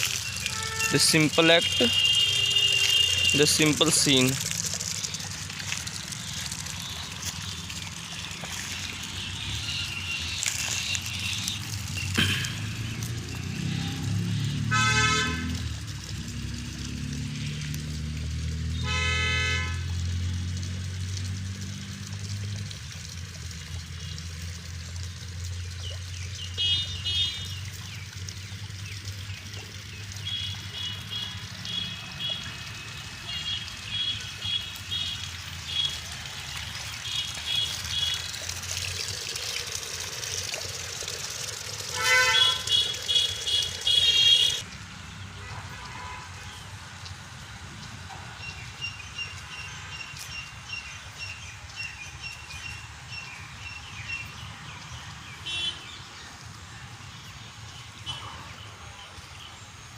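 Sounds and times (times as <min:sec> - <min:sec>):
low engine rumble: 0:00.0 - 0:14.6.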